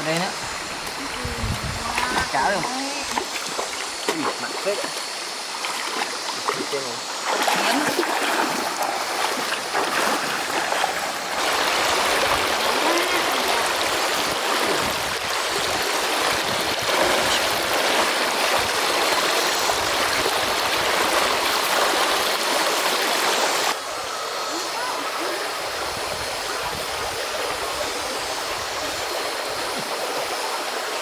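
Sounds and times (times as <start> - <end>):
stream water rushing over rocks: 0.0 - 31.0.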